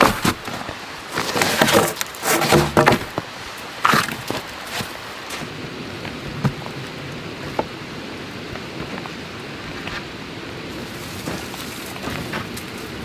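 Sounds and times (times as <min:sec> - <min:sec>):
heavy rain falling: 0:10.2 - 0:13.0.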